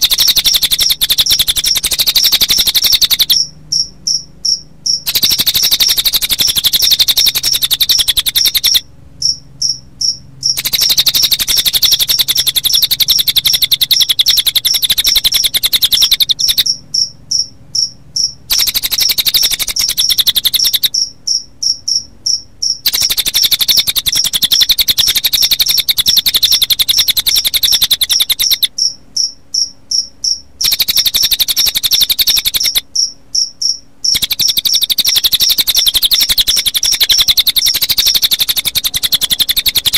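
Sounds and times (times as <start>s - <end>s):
bird high-pitched trill: 0.0s - 39.9s
crickets chirping: 0.0s - 39.9s.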